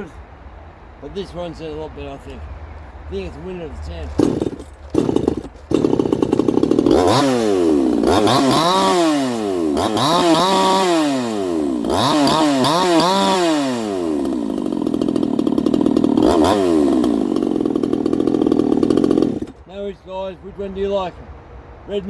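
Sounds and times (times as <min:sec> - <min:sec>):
chainsaw revving and idling: 0:03.8 - 0:19.7.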